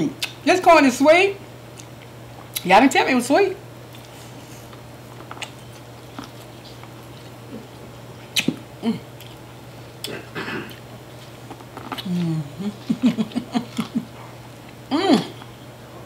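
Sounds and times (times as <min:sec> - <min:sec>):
steady low hum: 0:00.0 - 0:16.0
chewing clicks and mouth smacks: 0:01.7 - 0:02.7, 0:03.9 - 0:08.6, 0:11.5 - 0:12.1.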